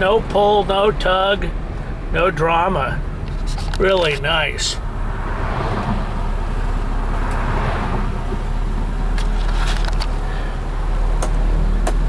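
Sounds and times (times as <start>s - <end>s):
car engine running: 0.0s - 12.0s
tyre and wind noise: 2.9s - 10.4s.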